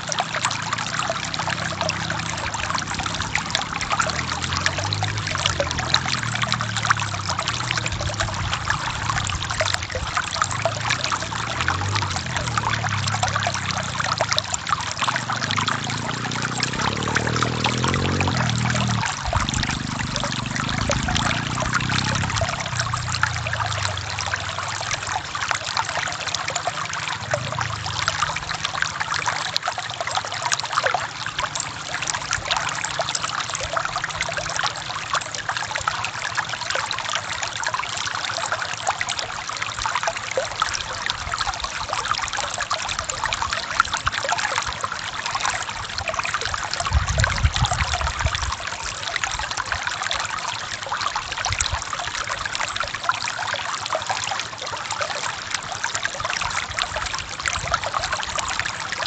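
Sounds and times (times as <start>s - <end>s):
stream running over rocks: 0.0s - 59.0s
low rumbles: 0.7s - 25.4s.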